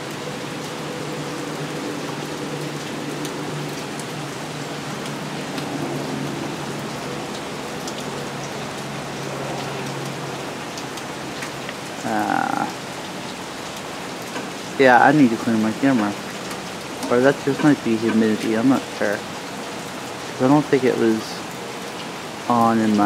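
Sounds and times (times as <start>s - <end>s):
heavy rain on pavement and cars: 0.0s - 23.0s.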